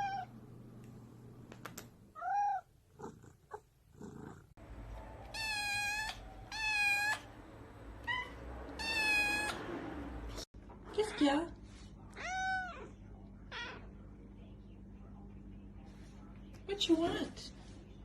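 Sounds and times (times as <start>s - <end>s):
cat meowing: 0.0s - 0.3s, 2.2s - 2.7s, 5.2s - 7.3s, 8.0s - 9.6s, 12.2s - 12.9s.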